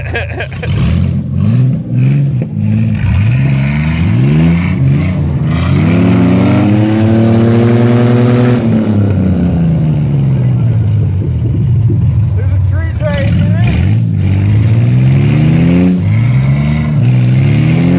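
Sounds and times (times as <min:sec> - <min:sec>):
engine revving hard: 0:00.4 - 0:09.4, 0:13.0 - 0:17.9.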